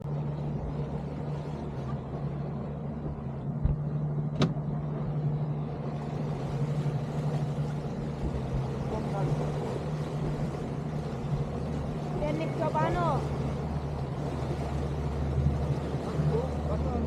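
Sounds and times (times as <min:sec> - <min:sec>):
outboard motor running: 0:00.0 - 0:17.0
low thump: 0:03.6 - 0:04.7.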